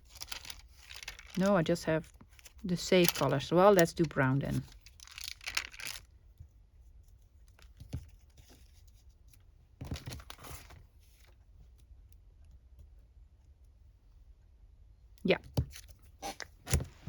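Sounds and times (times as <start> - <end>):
paper rustling: 0.0 - 6.0, 9.8 - 11.3.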